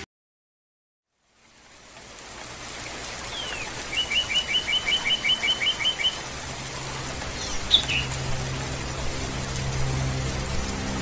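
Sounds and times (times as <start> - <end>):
songbird calling: 2.8 - 6.3, 7.3 - 8.2.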